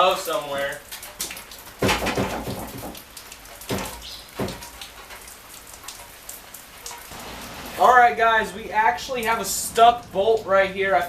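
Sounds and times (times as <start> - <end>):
sharp knocks on metal: 1.8 - 3.0, 3.7 - 4.8.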